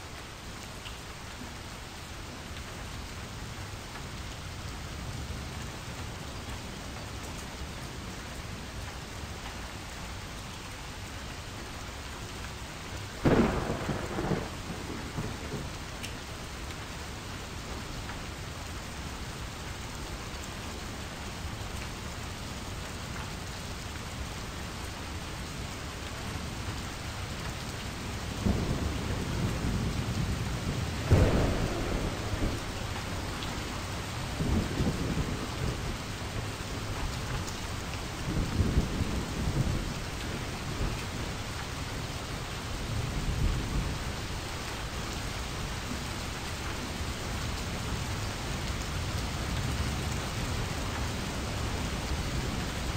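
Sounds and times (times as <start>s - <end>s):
steady rain: 0.0s - 52.9s
thunder rolling: 13.2s - 15.7s, 30.3s - 33.4s.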